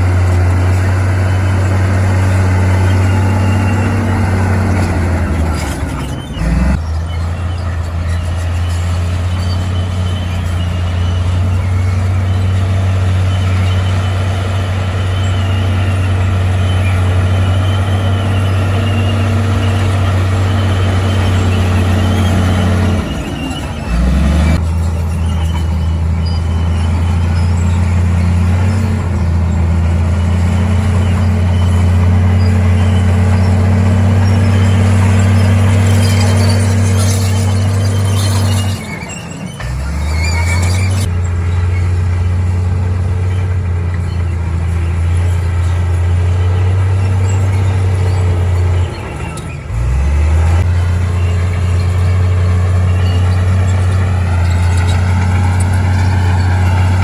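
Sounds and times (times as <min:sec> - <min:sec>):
heavy diesel engine humming: 0:00.0 - 0:57.0.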